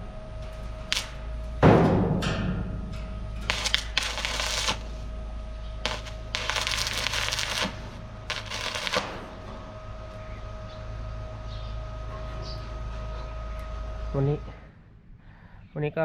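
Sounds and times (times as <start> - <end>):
faint steady hum: 2.8 - 15.7
scratchy rasping scraping: 3.5 - 5.0, 5.9 - 9.2.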